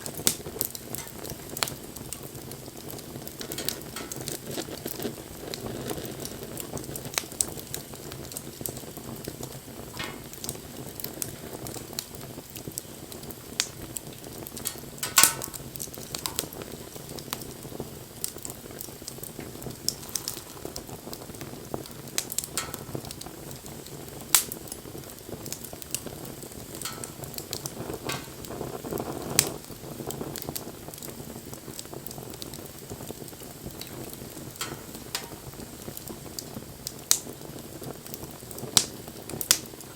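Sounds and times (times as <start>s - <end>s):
wood fire crackling and hissing: 0.0s - 39.9s.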